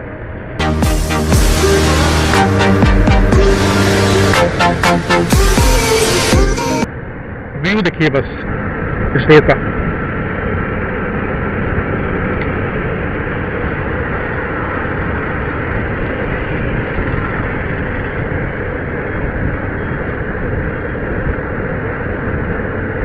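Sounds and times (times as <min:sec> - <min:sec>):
wind and road noise: 0:00.0 - 0:00.6, 0:06.9 - 0:23.0.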